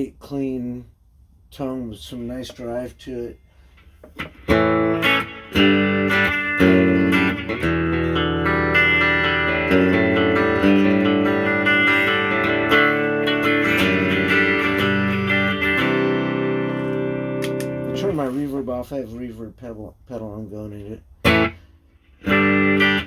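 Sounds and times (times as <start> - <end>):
clean electric guitar chords: 4.2 - 18.2, 21.2 - 21.6, 22.2 - 23.0.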